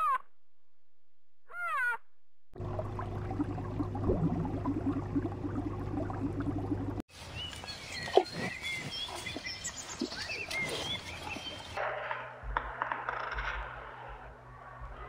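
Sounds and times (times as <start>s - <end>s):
underwater hum with crackling: 2.6s - 7.0s
small birds chirping: 7.2s - 11.8s.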